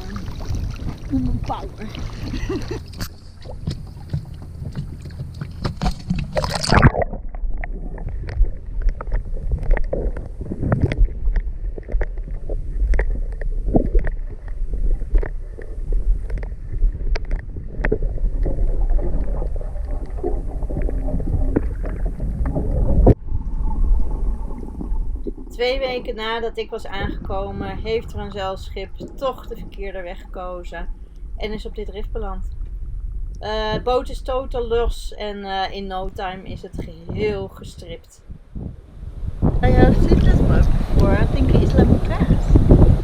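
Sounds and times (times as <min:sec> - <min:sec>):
water sloshing: 0:00.0 - 0:43.0
knocks and scrapes: 0:00.3 - 0:18.0.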